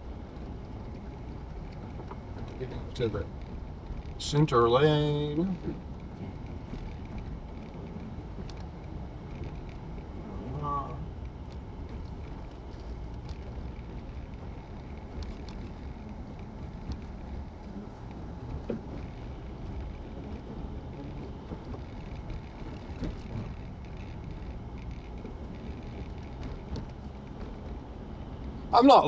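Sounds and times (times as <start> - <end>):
car cabin road noise rumble: 0.0 - 29.0
faint clicks: 5.4 - 10.3, 11.2 - 28.6.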